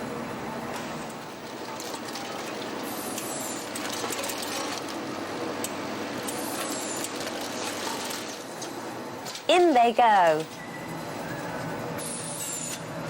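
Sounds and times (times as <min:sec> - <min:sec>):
factory machinery hum: 0:00.0 - 0:13.0
conveyor clatter of small clicks: 0:01.2 - 0:09.6.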